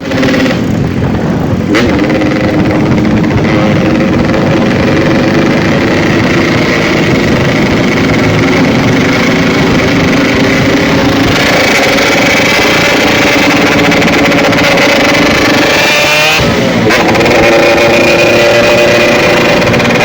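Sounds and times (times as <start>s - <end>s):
motorcycle engine idling: 0.0s - 15.8s.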